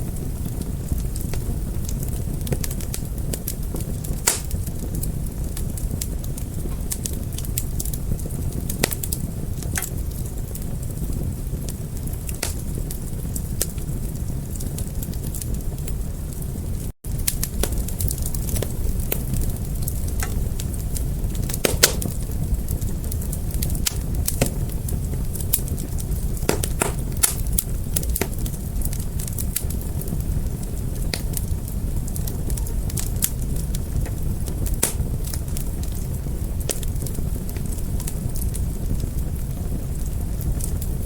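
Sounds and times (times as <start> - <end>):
fire crackling and popping: 0.0 - 41.0
rumble of fire flames: 0.0 - 41.0.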